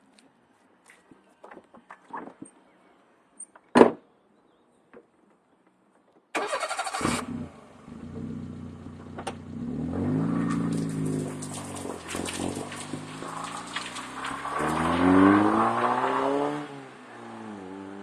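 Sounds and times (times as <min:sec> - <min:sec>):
car engine idling: 0:06.9 - 0:14.2.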